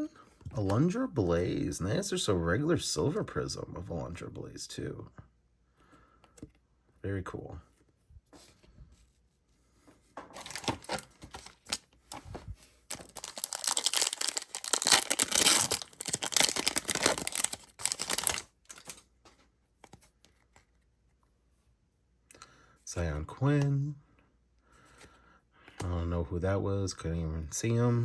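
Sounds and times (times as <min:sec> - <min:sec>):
foil wrapper tearing and crinkling: 0:12.9 - 0:19.0.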